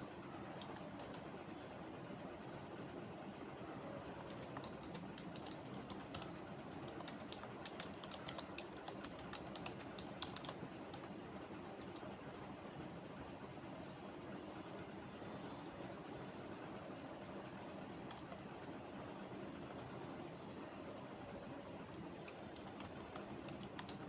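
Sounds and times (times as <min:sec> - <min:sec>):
low background hum: 0:00.0 - 0:24.0
keyboard keystroke clicks: 0:04.3 - 0:11.1, 0:11.7 - 0:12.1, 0:18.1 - 0:18.5, 0:21.9 - 0:24.0.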